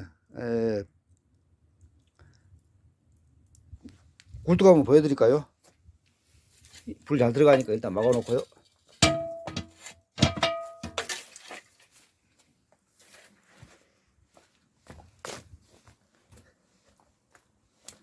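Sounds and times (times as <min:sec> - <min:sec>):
metal scrape: 0:07.4 - 0:12.0
metallic clanks: 0:09.0 - 0:11.3.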